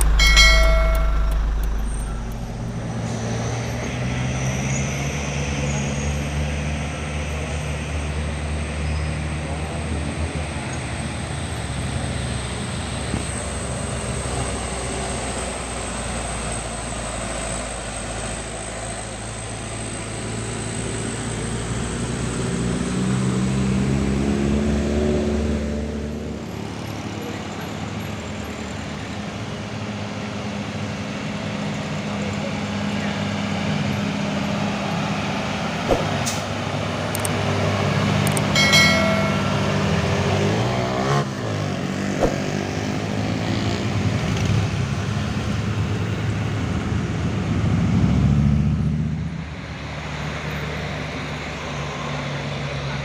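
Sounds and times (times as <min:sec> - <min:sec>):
sharp knock: 0:00.0 - 0:03.0
diesel truck engines straining: 0:00.0 - 0:53.0.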